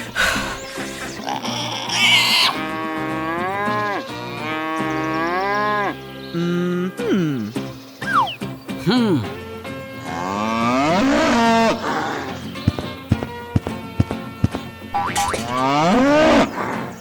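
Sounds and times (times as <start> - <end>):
cattle mooing: 10.1 - 12.4, 15.4 - 16.5.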